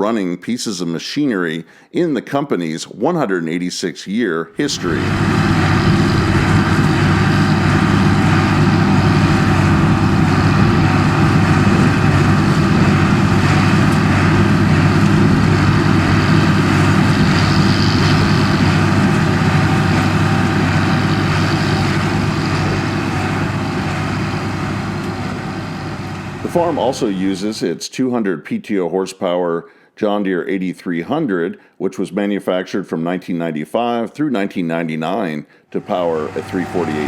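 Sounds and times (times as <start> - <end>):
tractor and baler droning: 4.6 - 27.6, 35.8 - 37.0.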